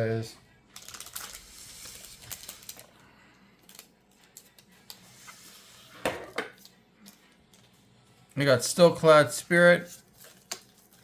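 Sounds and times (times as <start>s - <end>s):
wrapper rustling: 0.7s - 3.0s.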